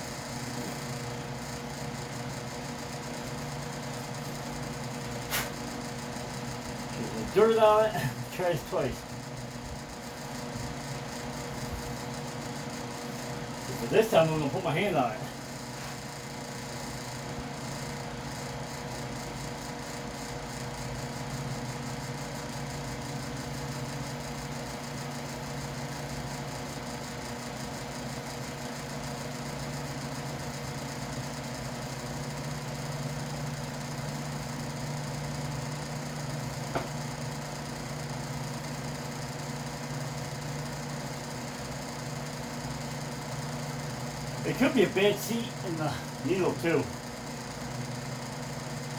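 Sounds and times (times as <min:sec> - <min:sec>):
workshop fan humming: 0:00.0 - 0:48.9
sharp click: 0:05.3 - 0:05.6.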